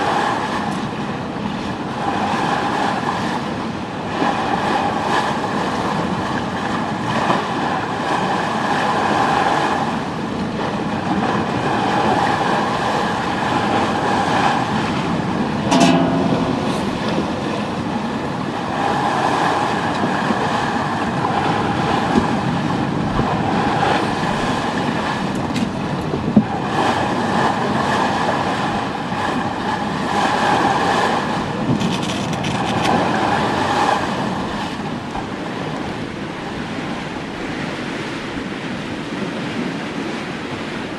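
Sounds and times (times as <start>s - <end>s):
steady rushing noise: 8.3s - 38.7s
whining hum: 14.7s - 18.8s.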